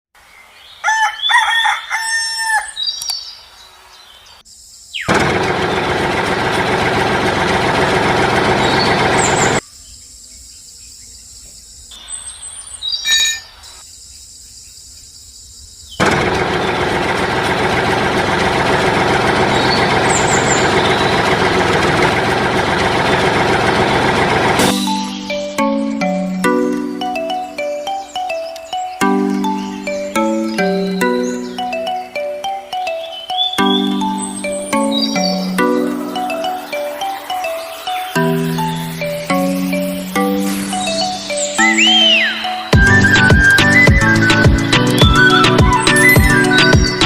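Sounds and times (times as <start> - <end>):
rooster crowing: 0.8 - 2.9
loud steady noise: 5.1 - 9.6, 16.0 - 25.2
small bird chirps: 10.9 - 13.8.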